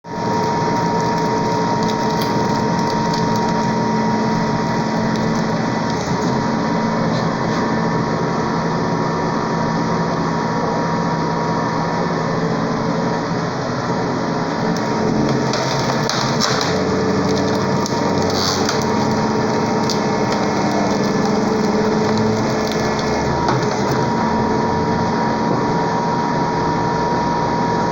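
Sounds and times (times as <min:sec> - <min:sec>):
wood crackling: 0:00.1 - 0:06.7, 0:14.8 - 0:24.3
log splitter motor and pump hum: 0:00.1 - 0:27.9.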